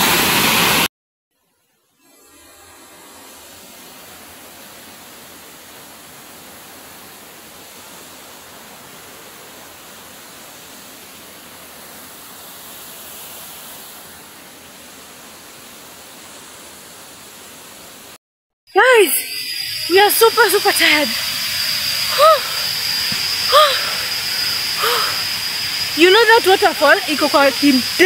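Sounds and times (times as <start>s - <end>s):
waterfall rushing: 20.0s - 28.0s.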